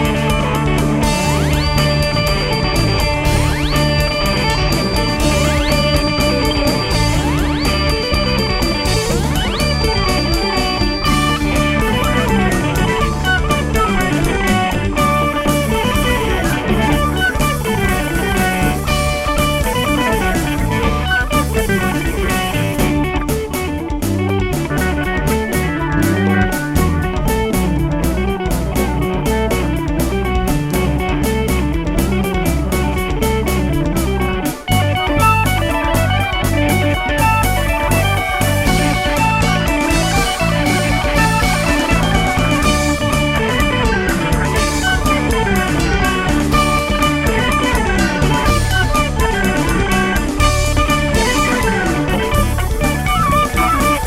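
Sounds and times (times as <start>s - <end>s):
bass guitar: 0.0s - 54.0s
drum kit: 0.0s - 54.0s
electric guitar: 0.0s - 54.0s.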